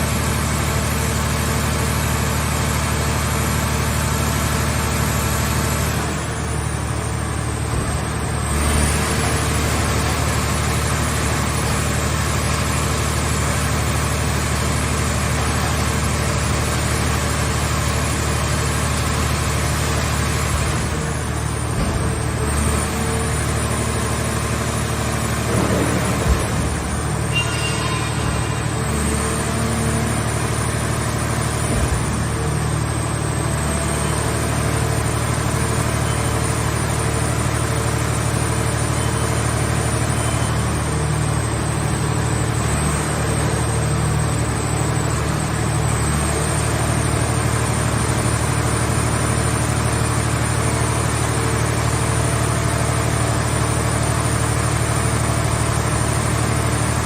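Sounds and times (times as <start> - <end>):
baler engine running: 0.0 - 57.0
thin high whine: 26.4 - 30.3.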